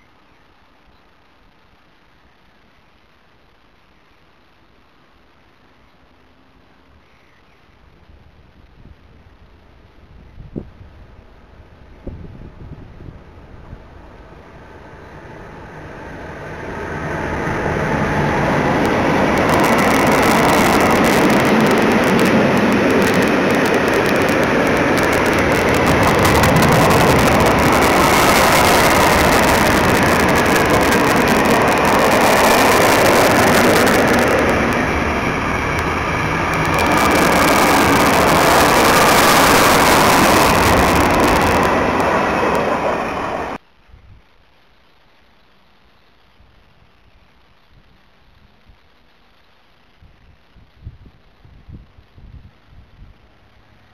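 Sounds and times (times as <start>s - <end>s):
freight train wheels on rails: 11.1s - 43.6s.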